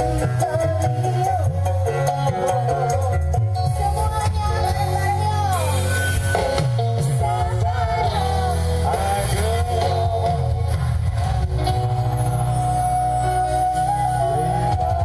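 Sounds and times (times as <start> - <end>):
heavy bass: 0.0 - 15.0
live band over loudspeakers: 0.0 - 15.0
person singing: 0.0 - 15.0.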